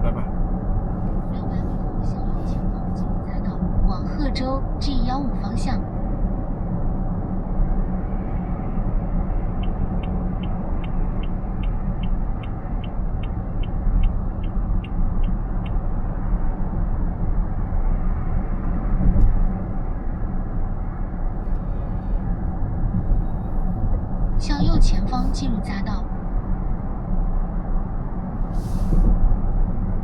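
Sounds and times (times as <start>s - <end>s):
road and tyre noise in car: 0.0s - 30.0s
turn signal ticking: 9.5s - 16.1s.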